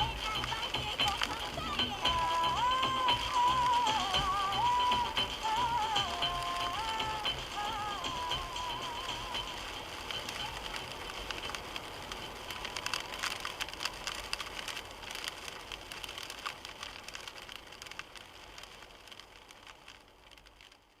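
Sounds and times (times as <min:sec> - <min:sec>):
rain hitting a car: 0:00.0 - 0:21.0.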